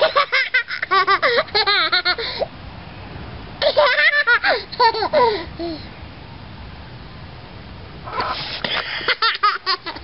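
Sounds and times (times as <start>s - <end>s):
toddler laughing hysterically: 0.0s - 2.5s, 3.6s - 5.8s, 8.1s - 10.0s.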